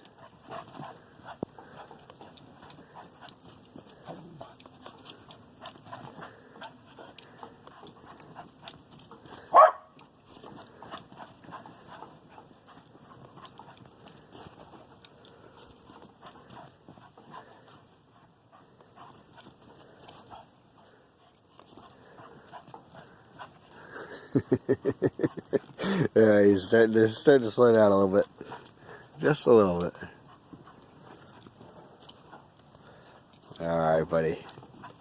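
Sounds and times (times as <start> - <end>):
dog barking: 9.4 - 10.0.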